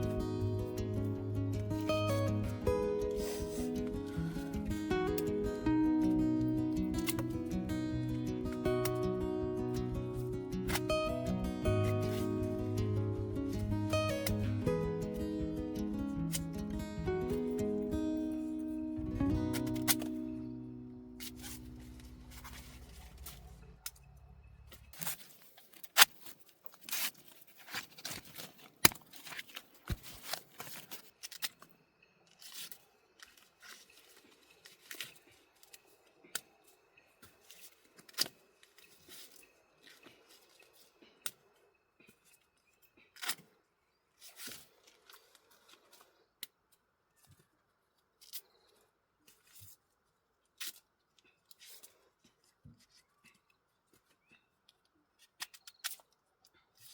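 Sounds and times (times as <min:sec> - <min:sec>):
corn husks tearing by hand: 0:21.2 - 0:24.0, 0:24.9 - 0:31.7.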